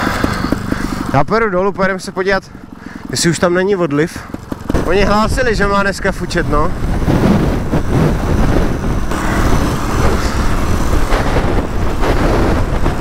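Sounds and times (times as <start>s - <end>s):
two-stroke motorcycle engine: 0.0s - 13.0s
wind buffeting microphone: 4.3s - 13.0s.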